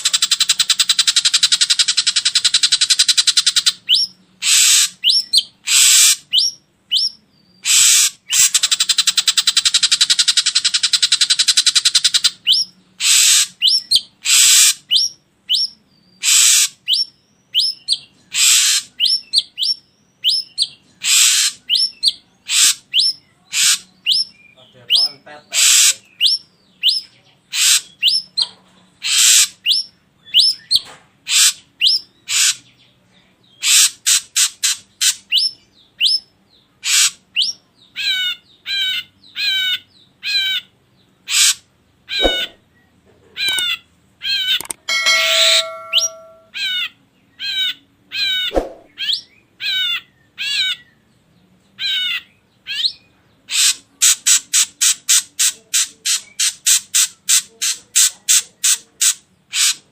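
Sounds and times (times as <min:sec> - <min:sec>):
harsh buzzy bird call: 0:00.0 - 0:11.2, 0:24.9 - 0:26.4, 0:41.3 - 0:42.6.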